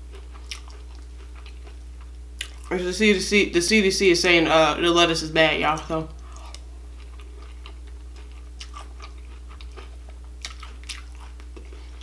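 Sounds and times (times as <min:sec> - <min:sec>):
chewing crunchy cereal: 0:00.0 - 0:02.7, 0:06.2 - 0:12.0
steady low hum: 0:00.0 - 0:12.0.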